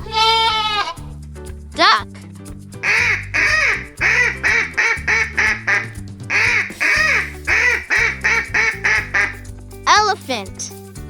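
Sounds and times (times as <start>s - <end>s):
cheerful background music: 0.0s - 11.0s
duck quacking: 2.8s - 9.5s.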